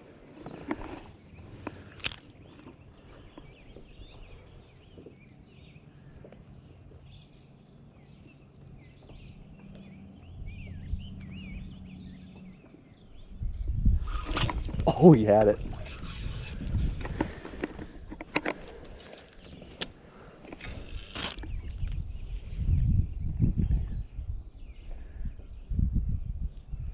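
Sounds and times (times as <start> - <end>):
songbirds chirping and whistling: 0.0 - 26.9.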